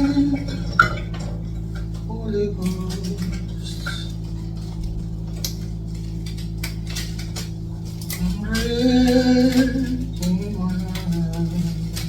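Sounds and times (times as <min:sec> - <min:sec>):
worship song singing: 0:00.0 - 0:04.3, 0:08.0 - 0:12.0
kitchen utensils clinking: 0:00.0 - 0:12.0
low drone: 0:00.0 - 0:12.0.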